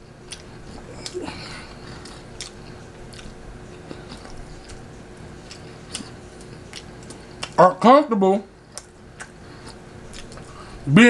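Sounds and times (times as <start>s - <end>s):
chewing spaghetti: 0.2s - 7.6s, 8.6s - 10.8s
wet mouth sounds: 2.0s - 7.6s.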